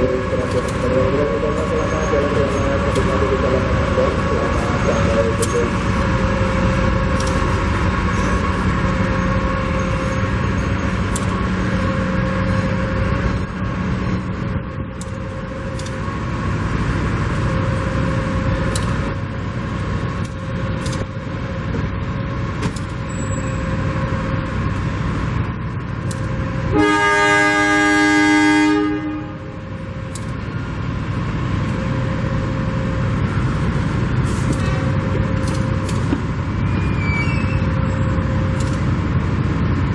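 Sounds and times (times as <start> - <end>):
train rumbling on rails: 0.0 - 39.9
train horn blast: 26.7 - 29.6.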